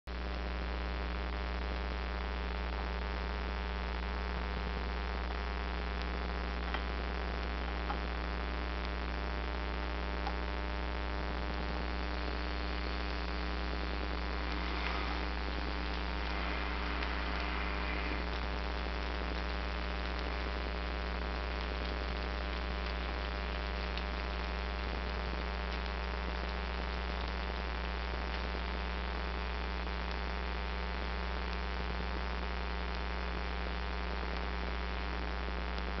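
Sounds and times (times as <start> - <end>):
electrical mains hum: 0.1 - 36.0
hiss: 12.1 - 20.8.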